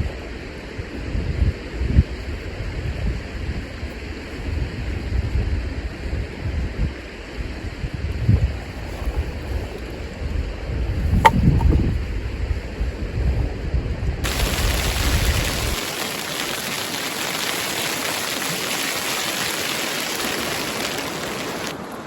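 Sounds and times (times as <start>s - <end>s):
wind rumble on microphone: 0.0s - 15.8s
steady even hiss: 14.2s - 21.8s.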